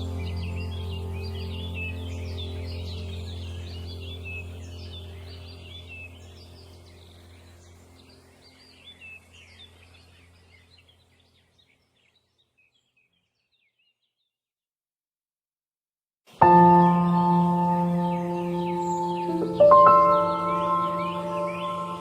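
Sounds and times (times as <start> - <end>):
steady low hum: 0.0 - 11.1
songbirds chirping: 0.0 - 14.4, 16.3 - 22.0.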